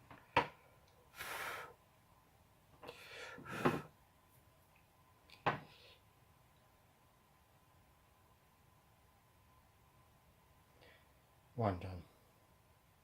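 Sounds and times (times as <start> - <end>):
faint steady hum: 0.0 - 13.0
breathy puffs: 2.8 - 3.9.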